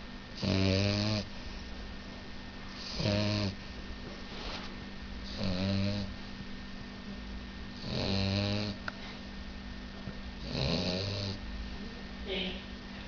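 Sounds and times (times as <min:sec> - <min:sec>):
puppy snoring: 0:00.3 - 0:01.6, 0:02.7 - 0:03.7, 0:05.2 - 0:06.2, 0:07.7 - 0:09.2, 0:10.4 - 0:11.5.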